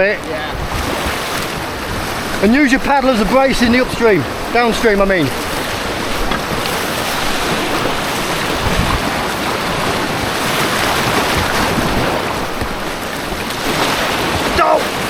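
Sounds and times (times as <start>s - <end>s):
white water rushing: 0.0s - 15.0s.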